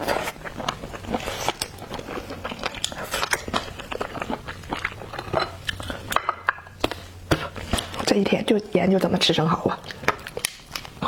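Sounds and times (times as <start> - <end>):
person chewing with wet mouth noises: 0.0 - 8.1.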